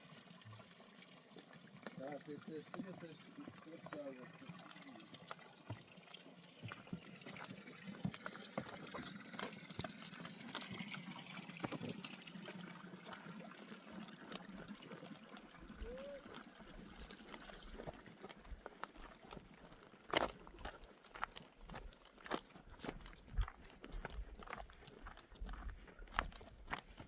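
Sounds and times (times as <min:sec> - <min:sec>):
faint trickling water: 0:00.0 - 0:27.0.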